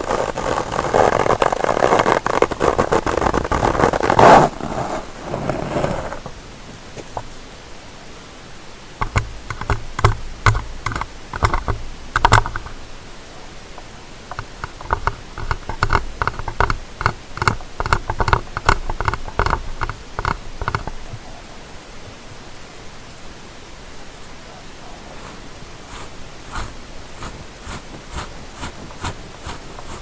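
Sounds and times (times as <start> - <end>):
ear-cleaning tool scratchy clicks: 0.0 - 6.4, 9.0 - 21.2, 25.2 - 30.0
steady hiss: 0.0 - 30.0.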